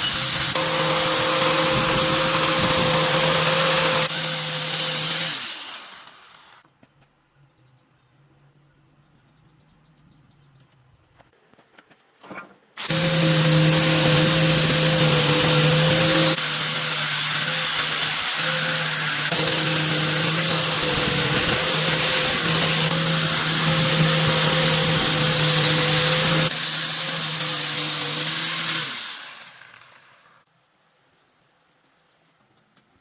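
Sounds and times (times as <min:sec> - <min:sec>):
electric power tool whining: 0:00.0 - 0:06.6, 0:12.8 - 0:30.4.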